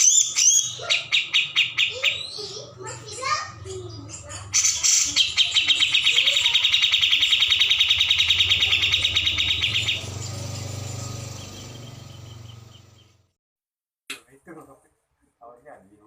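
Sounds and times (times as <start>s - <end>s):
bird chattering call: 0.0s - 13.2s.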